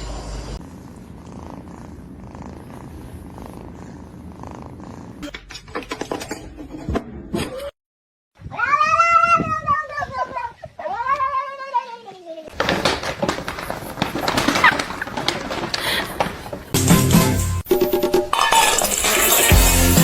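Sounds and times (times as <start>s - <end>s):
cat purring: 0.6s - 5.2s.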